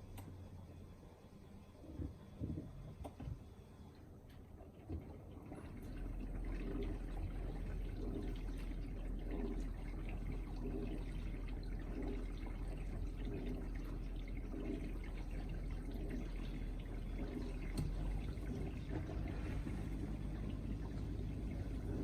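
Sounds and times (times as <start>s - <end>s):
pump humming: 1.4s - 22.0s
dishwasher water spraying and sloshing: 4.8s - 22.0s.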